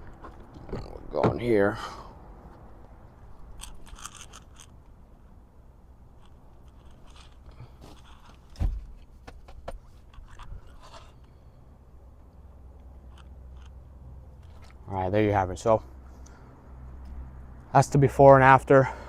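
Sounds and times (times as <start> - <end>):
handling clicks and rustles: 2.5 - 5.2, 6.0 - 15.0
dull thump: 8.5 - 9.9.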